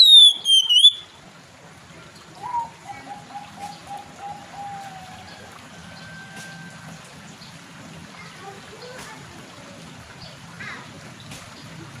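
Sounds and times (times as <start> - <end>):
bird whistling phrase: 0.0 - 1.1, 2.4 - 3.8.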